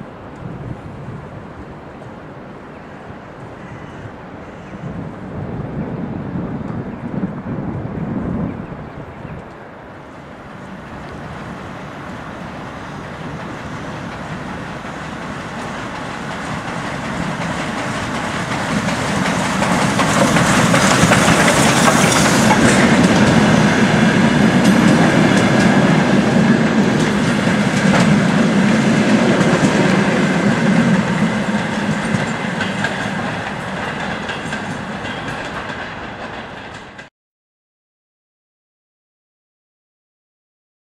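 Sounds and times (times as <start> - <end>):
train wheels clattering: 12.4 - 37.1.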